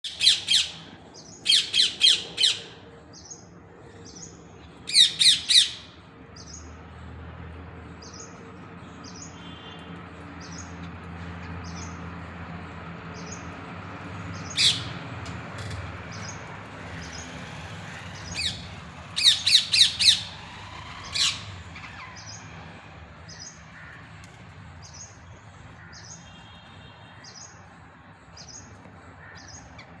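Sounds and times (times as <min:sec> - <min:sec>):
parrot squawking: 0:00.1 - 0:00.8, 0:01.4 - 0:02.8, 0:04.9 - 0:05.9, 0:18.4 - 0:22.2.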